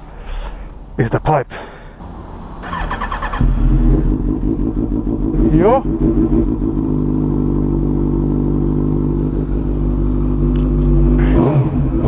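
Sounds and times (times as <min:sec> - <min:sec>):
motorcycle engine idling loud exhaust: 0:03.3 - 0:12.0.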